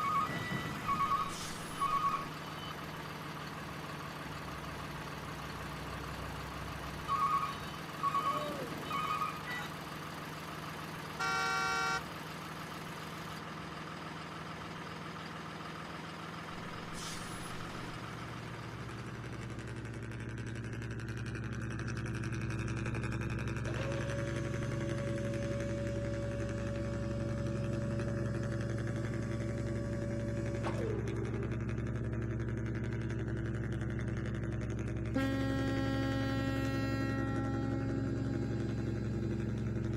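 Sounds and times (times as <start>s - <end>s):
horn blast: 11.2s - 12.0s, 35.1s - 39.3s.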